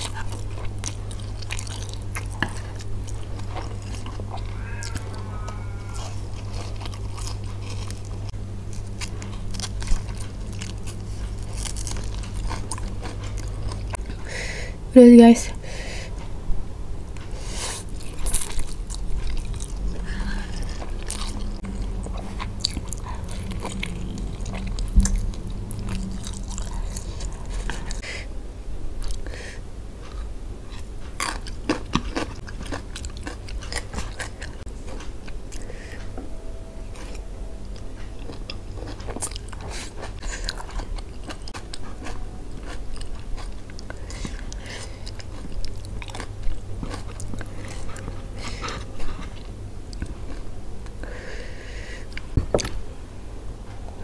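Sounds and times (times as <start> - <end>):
wet chewing and mouth clicks: 0.0 - 5.3.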